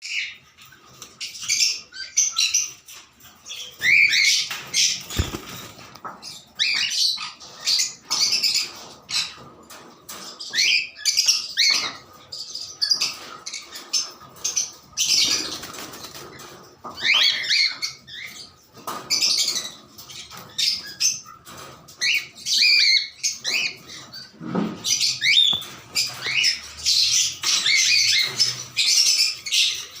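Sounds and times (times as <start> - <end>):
cockatiels chirping: 6.3 - 9.4, 25.0 - 30.0.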